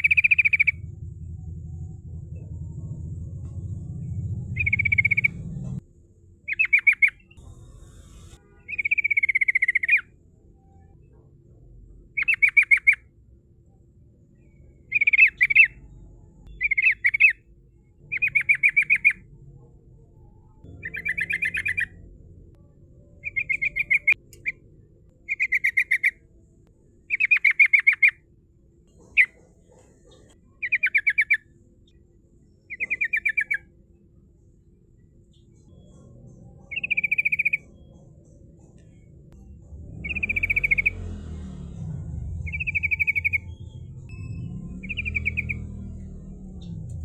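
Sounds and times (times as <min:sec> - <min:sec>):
bird singing bubbly notes: 0:00.0 - 0:05.8, 0:20.6 - 0:22.0, 0:23.0 - 0:24.6, 0:36.7 - 0:38.0, 0:39.9 - 0:47.0.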